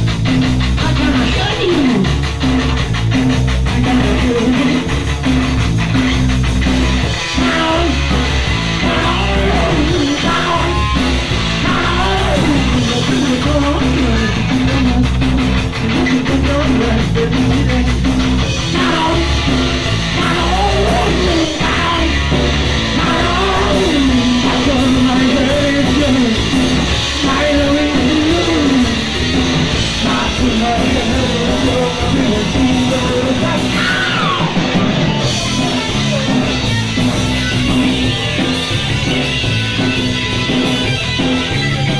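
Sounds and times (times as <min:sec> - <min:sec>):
punk rock band playing: 0:00.0 - 0:41.9
sung and shouted vocals: 0:07.2 - 0:29.2, 0:29.9 - 0:36.0.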